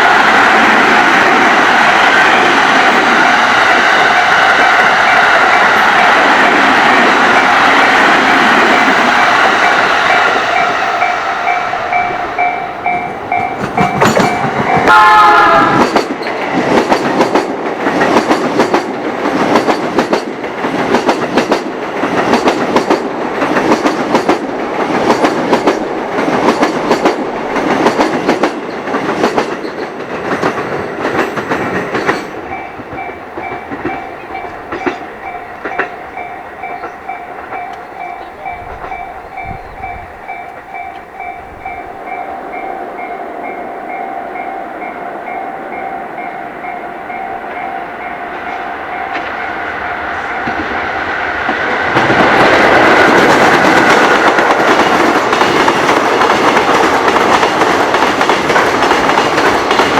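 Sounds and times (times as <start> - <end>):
train wheels clattering: 0.0 - 41.9, 47.4 - 59.9
crossing alarm ringing: 1.9 - 16.5, 30.4 - 51.0
train horn blast: 14.6 - 16.0.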